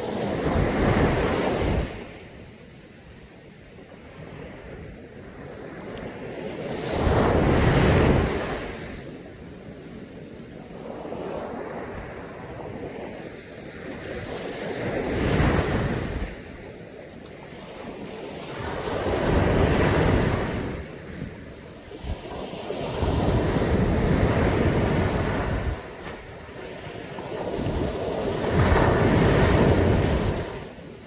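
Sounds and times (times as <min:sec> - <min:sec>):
surf washing up a beach: 0:00.0 - 0:31.0
wind buffeting microphone: 0:17.6 - 0:31.0.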